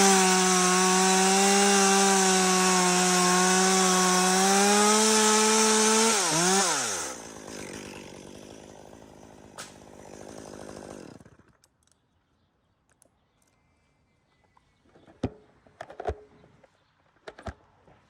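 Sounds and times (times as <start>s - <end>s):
chainsaw engine running and idling: 0.0s - 11.6s.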